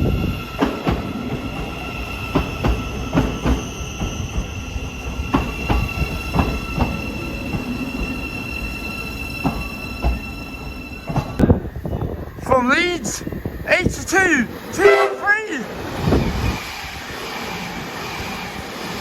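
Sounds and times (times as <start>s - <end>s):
train wheel squeal: 0.0s - 12.4s.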